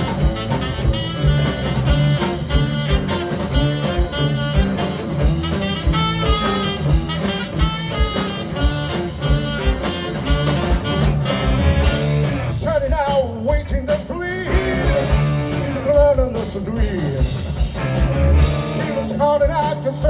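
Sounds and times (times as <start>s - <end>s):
band playing upbeat instrumental: 0.0s - 20.0s.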